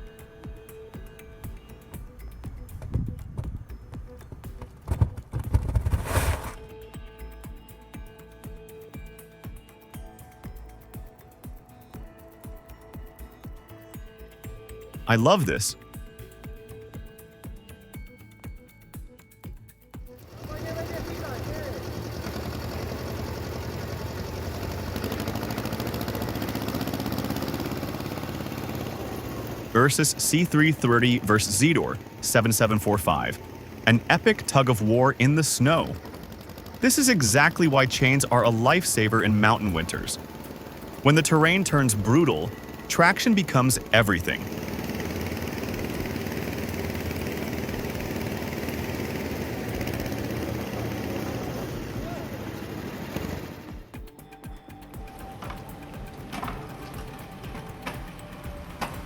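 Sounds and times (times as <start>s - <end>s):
vehicle engine running: 4.3s - 7.3s, 20.2s - 59.0s.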